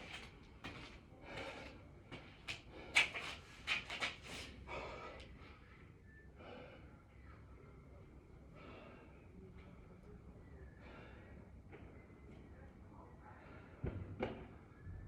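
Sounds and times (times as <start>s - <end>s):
man breathing hard: 4.6s - 5.7s.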